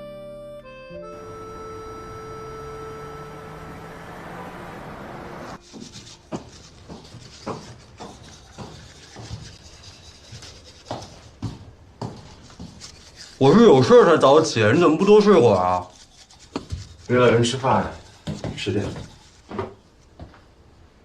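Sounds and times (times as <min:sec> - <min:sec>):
sustained background music: 0:00.0 - 0:05.6.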